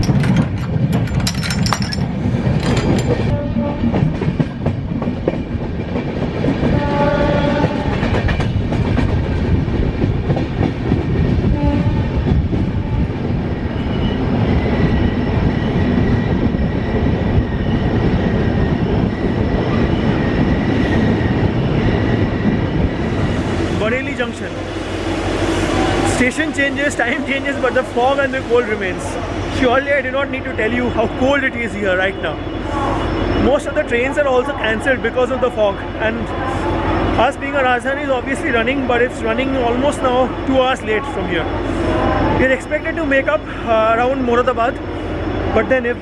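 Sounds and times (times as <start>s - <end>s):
train wheels rumbling and clattering: 0.0s - 46.0s
train horn: 3.3s - 4.0s, 6.7s - 8.1s, 11.6s - 13.1s.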